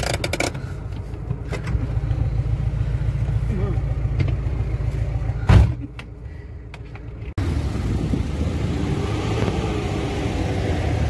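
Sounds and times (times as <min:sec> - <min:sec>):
off-road vehicle engine rumble: 0:00.0 - 0:11.0.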